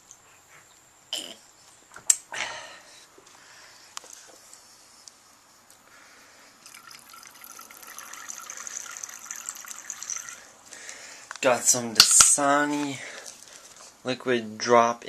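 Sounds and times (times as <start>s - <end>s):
water running into container: 6.6s - 10.6s.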